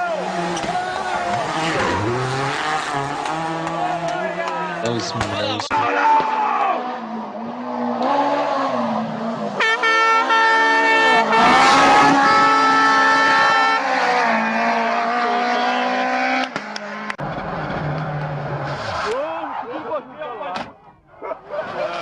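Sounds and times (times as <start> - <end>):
rally car engines revving: 0.0 - 22.0
car engine passing by: 0.1 - 5.4.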